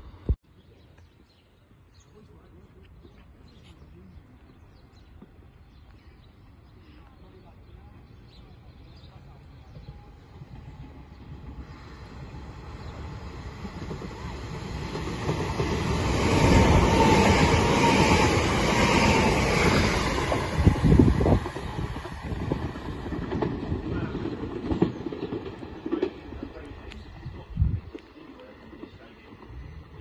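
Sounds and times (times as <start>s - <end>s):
train passing close by: 6.4s - 30.0s.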